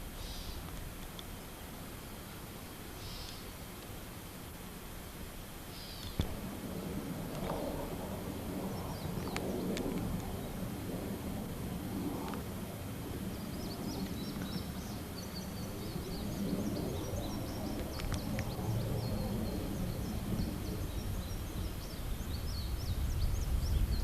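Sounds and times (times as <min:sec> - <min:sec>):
small birds chirping: 0:00.0 - 0:04.6, 0:05.6 - 0:06.4, 0:07.3 - 0:11.3, 0:12.0 - 0:24.0
faint clicks: 0:00.6 - 0:01.4, 0:03.2 - 0:04.6, 0:07.3 - 0:08.0, 0:09.1 - 0:10.3, 0:17.7 - 0:18.8
wind rumble: 0:04.6 - 0:24.0.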